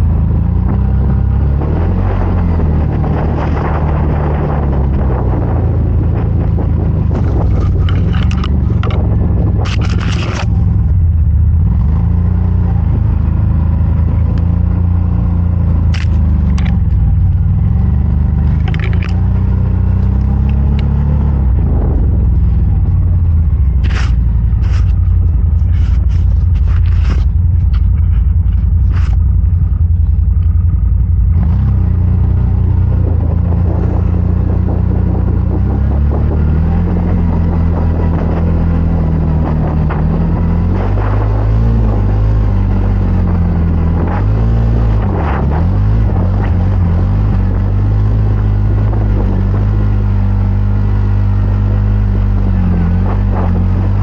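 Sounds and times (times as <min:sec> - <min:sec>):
engine running hard: 0:00.0 - 0:54.0
sharp clicks and knocks: 0:06.6 - 0:10.7, 0:15.9 - 0:17.4, 0:18.4 - 0:19.4.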